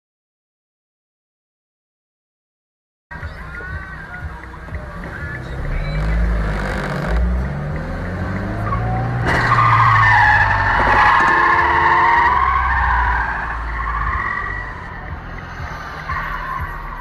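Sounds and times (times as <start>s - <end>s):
car engine rumbling: 3.1s - 17.0s
car tyres squealing: 5.2s - 17.0s.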